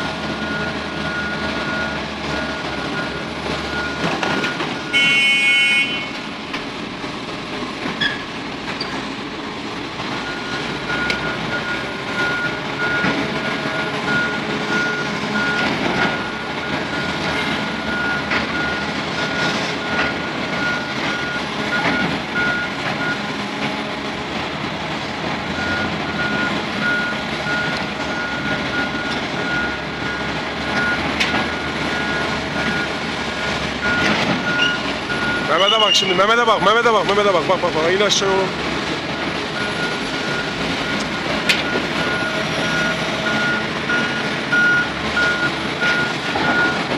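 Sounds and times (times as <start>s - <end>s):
heavy machine engine running: 0.0s - 46.9s
reversing alarm beeps: 0.4s - 6.1s, 10.2s - 23.2s, 25.6s - 36.2s, 39.6s - 46.9s.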